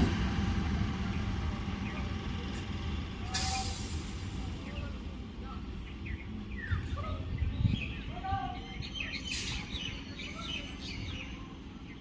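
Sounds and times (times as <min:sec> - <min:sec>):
small birds chirping: 0:05.7 - 0:12.0.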